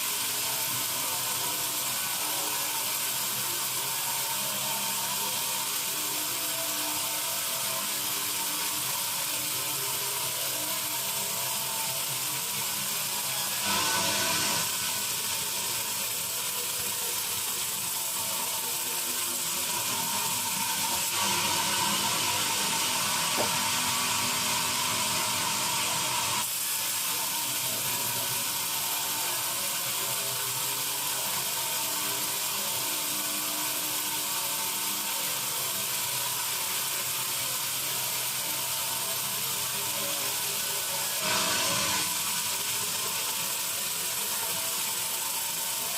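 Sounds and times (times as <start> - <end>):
bandsaw cutting a log: 13.1 - 15.0, 19.7 - 26.5, 41.0 - 42.9.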